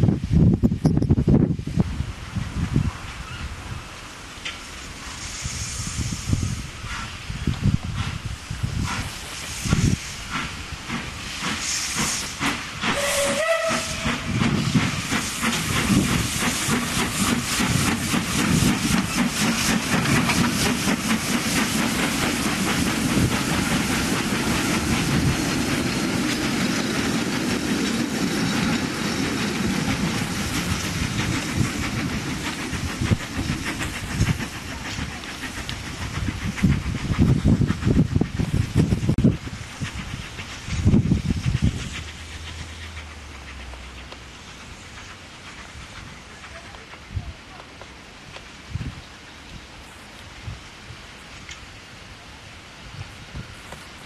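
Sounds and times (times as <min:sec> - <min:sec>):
steam locomotive chuffing: 0:00.7 - 0:48.4
steam locomotive whistle: 0:12.8 - 0:14.4.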